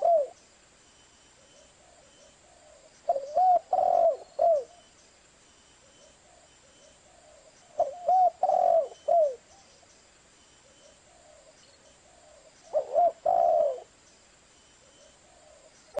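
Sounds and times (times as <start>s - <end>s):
dove cooing: 0.0s - 0.4s, 1.4s - 4.9s, 5.8s - 9.7s, 10.6s - 14.0s, 14.8s - 15.8s.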